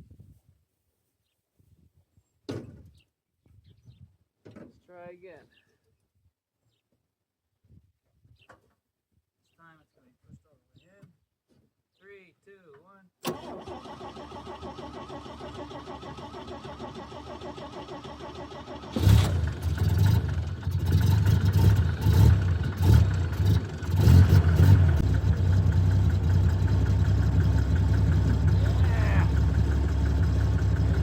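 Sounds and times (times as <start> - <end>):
starter cranking engine: 13.2 - 31.0
truck engine running unevenly: 16.1 - 31.0.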